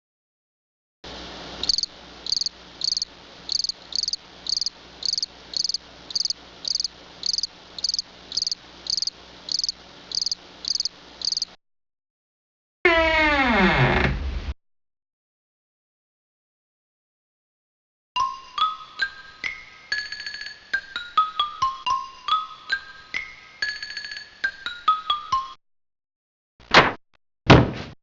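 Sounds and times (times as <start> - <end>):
faint background hum: 1.1 - 11.6
cricket chirping: 1.6 - 11.6.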